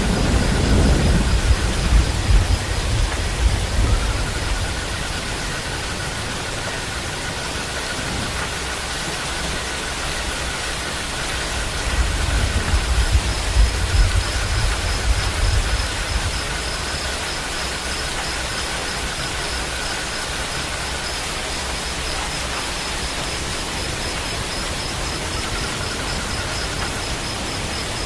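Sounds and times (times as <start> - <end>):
low rumbling: 0.0 - 22.1
rain hissing: 0.0 - 28.0.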